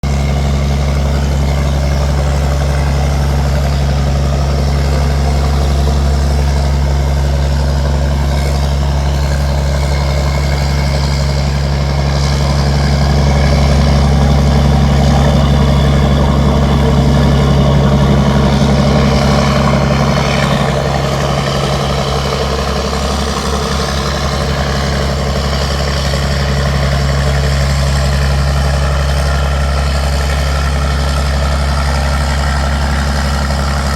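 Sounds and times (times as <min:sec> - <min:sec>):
tugboat engine humming: 0:00.0 - 0:33.9.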